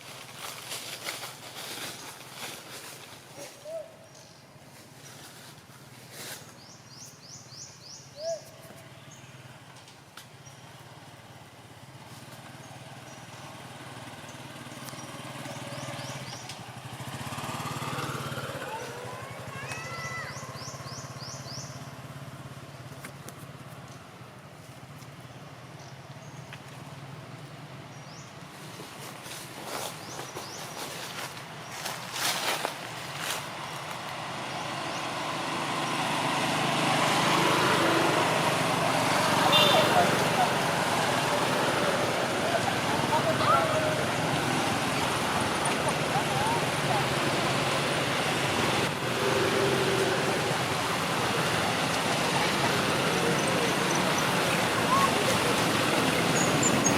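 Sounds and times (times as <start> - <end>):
vehicle approaching: 0.0 - 56.9
birds chirping: 0.5 - 5.2, 6.1 - 56.9
small engine running: 10.6 - 23.0, 28.5 - 56.9.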